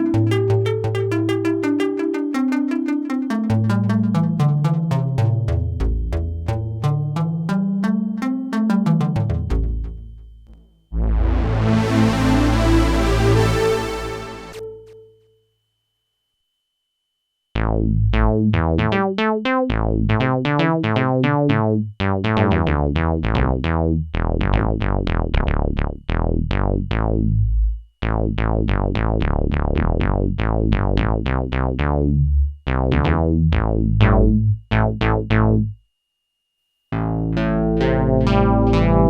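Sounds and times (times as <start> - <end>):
low synth bass notes: 0.0 - 14.7, 17.6 - 35.8, 36.9 - 39.0
synthesizer plucked notes: 0.0 - 15.1, 36.9 - 39.0.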